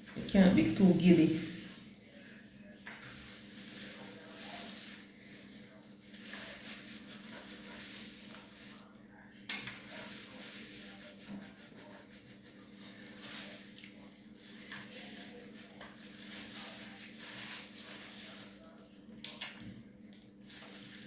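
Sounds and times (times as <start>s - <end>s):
hands rustling through hair: 9.8s - 18.6s.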